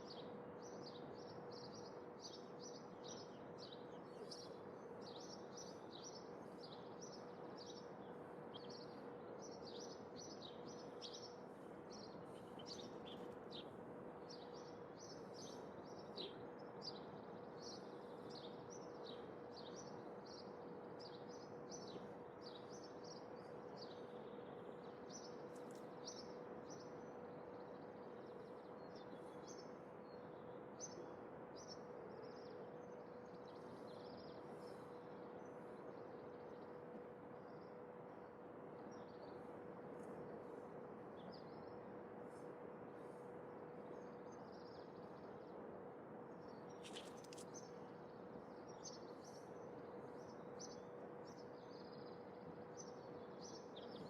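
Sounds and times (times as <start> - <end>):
faint hum: 0.0 - 54.0
small birds chirping: 46.4 - 54.0.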